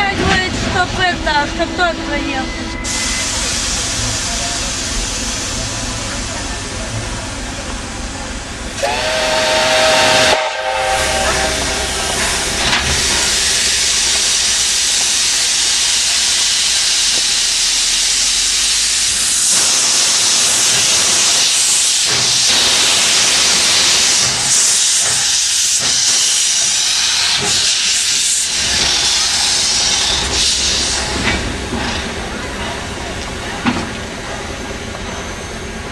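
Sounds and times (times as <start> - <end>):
steam venting hiss: 2.9 - 6.9, 8.8 - 32.2
steam locomotive whistle: 8.8 - 17.3.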